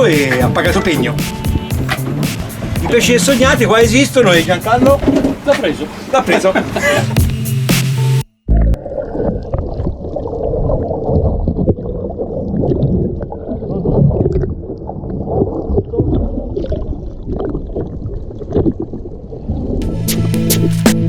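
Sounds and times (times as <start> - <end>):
water sloshing around boat: 0.0 - 7.4.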